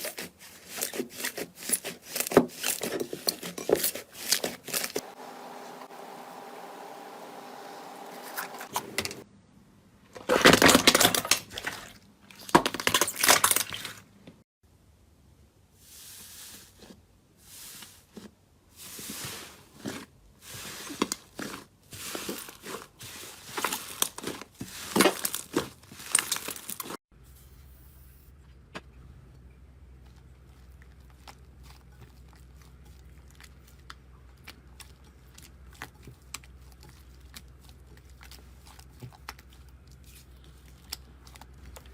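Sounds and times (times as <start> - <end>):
slime crackling and squishing: 19.0 - 27.0, 30.0 - 41.9.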